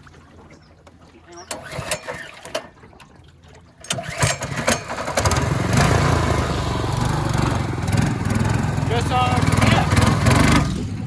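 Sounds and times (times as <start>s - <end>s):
small gas engine running: 3.8s - 11.0s.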